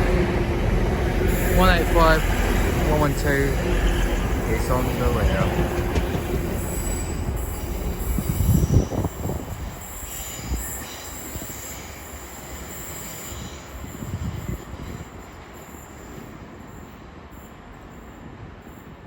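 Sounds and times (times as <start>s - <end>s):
train knocks: 0.0s - 10.6s
train low rumble: 0.0s - 19.0s
train wheels squealing on rails: 0.0s - 19.0s.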